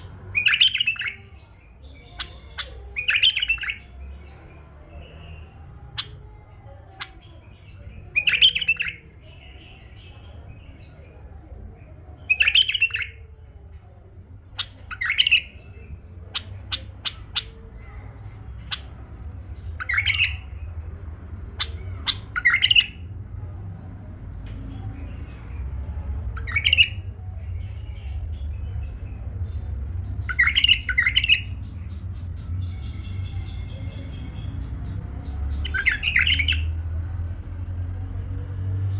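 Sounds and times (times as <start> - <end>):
faint low hum: 0.0 - 38.9
bird call notes: 0.3 - 1.2, 2.1 - 3.8, 8.2 - 9.0, 12.3 - 13.2, 14.6 - 15.5, 19.8 - 20.5, 21.6 - 23.0, 26.4 - 27.0, 30.3 - 31.6, 35.6 - 36.6
bulbul warbling song: 0.3 - 1.3, 2.0 - 3.9, 8.1 - 9.1, 12.3 - 13.2, 14.6 - 17.6, 19.7 - 20.5, 21.6 - 23.0, 26.4 - 27.0, 30.3 - 31.6, 35.6 - 36.7.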